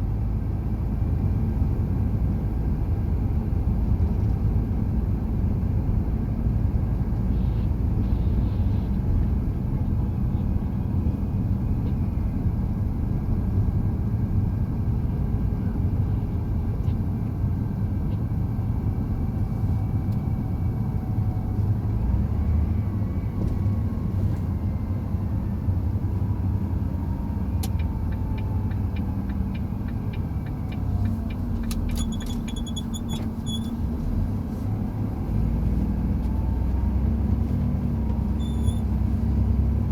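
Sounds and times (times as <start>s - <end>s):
truck engine and road rumble: 0.0s - 39.9s
faint whine: 38.2s - 39.0s.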